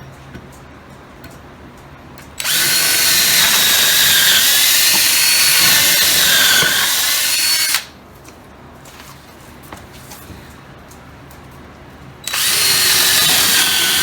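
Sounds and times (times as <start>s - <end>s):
cordless drill drilling into wood: 2.4s - 7.9s, 12.2s - 14.0s.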